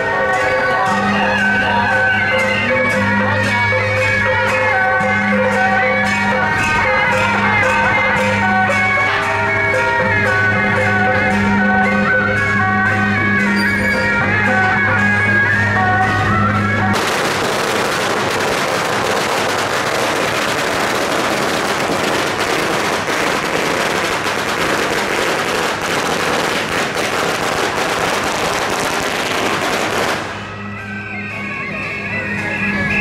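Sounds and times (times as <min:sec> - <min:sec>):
procession music: 0:00.0 - 0:33.0
firecrackers cracking: 0:16.9 - 0:30.6.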